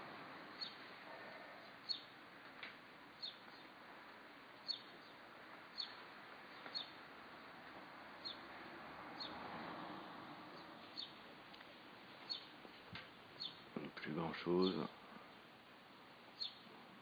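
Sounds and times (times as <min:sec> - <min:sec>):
faint rushing background: 0:00.0 - 0:17.0
small bird chirping: 0:00.5 - 0:02.2, 0:03.2 - 0:03.8, 0:04.6 - 0:07.0, 0:08.2 - 0:08.5, 0:09.2 - 0:09.4, 0:10.5 - 0:11.2, 0:12.1 - 0:12.6, 0:13.3 - 0:13.7, 0:16.3 - 0:16.7.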